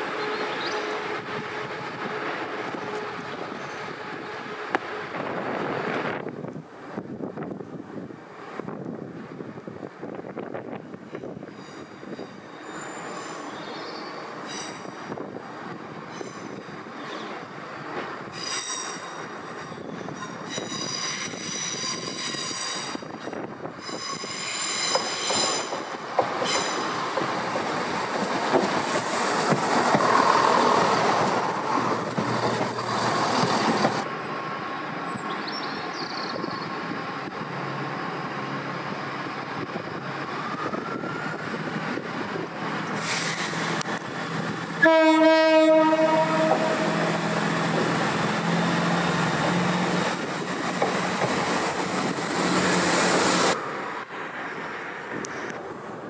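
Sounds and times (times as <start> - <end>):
diesel train low hum: 0.0 - 56.0
diesel train rushing past: 0.0 - 56.0
train wheels squealing: 11.1 - 15.1, 16.0 - 17.6, 18.3 - 27.0
train horn blast: 44.8 - 47.3.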